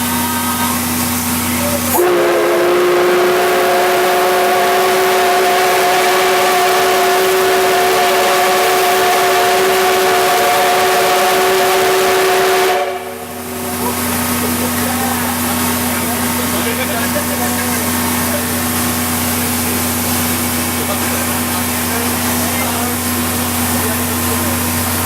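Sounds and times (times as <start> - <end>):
steam locomotive whistle: 1.8 - 13.8.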